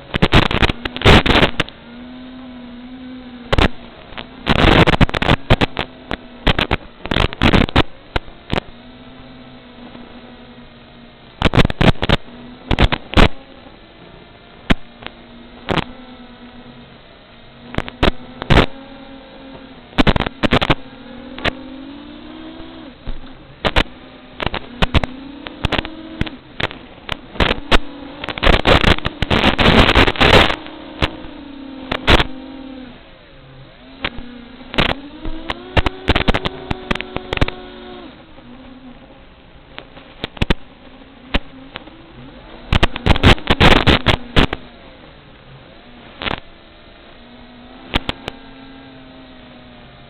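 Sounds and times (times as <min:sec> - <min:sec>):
sharp crackles and pops: 0:00.0 - 0:13.7, 0:14.6 - 0:16.8, 0:17.5 - 0:33.0, 0:33.7 - 0:50.0
burst of rough noise: 0:00.0 - 0:13.8, 0:14.6 - 0:50.0
drone propellers buzzing: 0:00.0 - 0:50.0.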